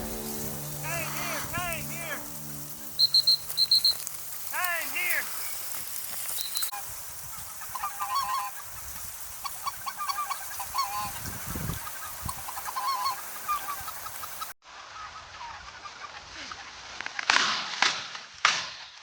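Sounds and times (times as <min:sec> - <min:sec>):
geese yelping calls: 0:00.0 - 0:16.1.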